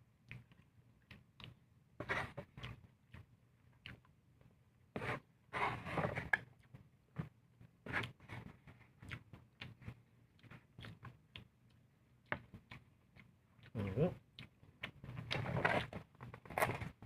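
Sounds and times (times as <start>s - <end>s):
person chewing: 0.2s - 4.2s, 7.9s - 16.8s.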